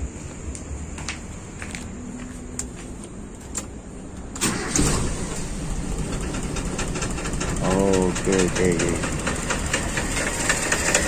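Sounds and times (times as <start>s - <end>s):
car engine starting: 3.6s - 11.0s
misfiring engine running: 4.4s - 11.0s.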